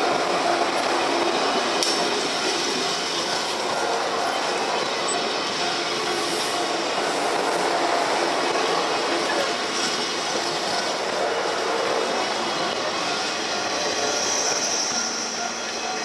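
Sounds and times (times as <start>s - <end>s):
freight train rolling on rails: 0.0s - 16.0s.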